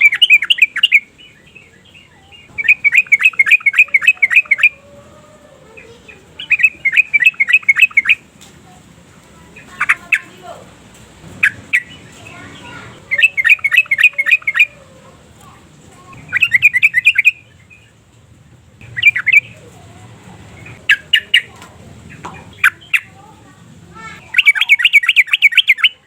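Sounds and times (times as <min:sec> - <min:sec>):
bird chattering song: 0:00.0 - 0:04.9, 0:05.6 - 0:18.0, 0:18.8 - 0:26.0
short bird notes: 0:16.1 - 0:17.9, 0:18.8 - 0:19.6.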